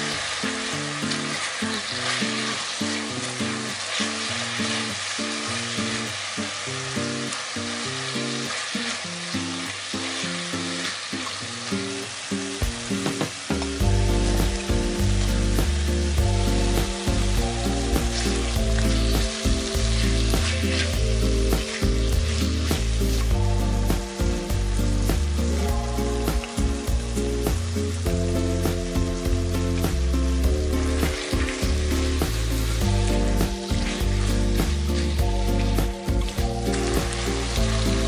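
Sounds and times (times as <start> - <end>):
food sizzling in a frying pan: 0.0 - 38.0
background music: 12.6 - 38.0.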